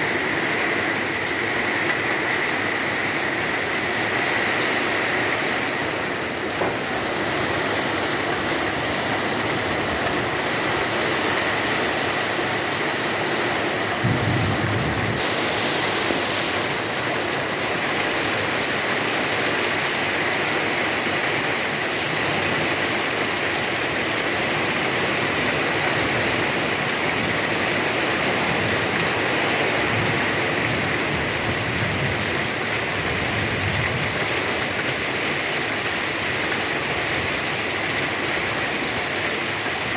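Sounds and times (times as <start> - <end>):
heavy rain pouring: 0.0 - 39.9
low rumble: 14.0 - 15.2.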